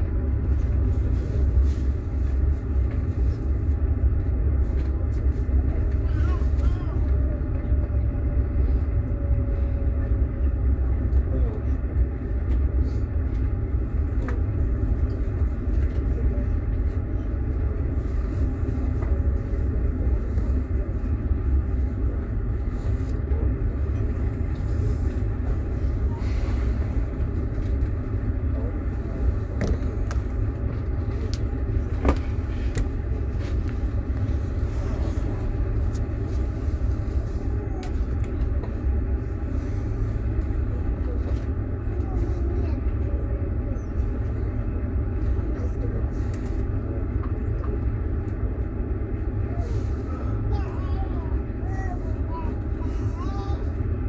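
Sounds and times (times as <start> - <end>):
train rumbling inside carriage: 0.0 - 54.0.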